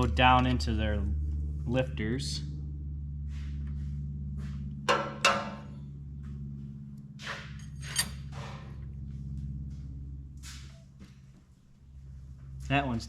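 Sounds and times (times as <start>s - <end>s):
steady low hum: 0.0s - 13.0s
soft metal scrape: 7.3s - 8.6s
metal push rods clinking: 7.6s - 8.3s.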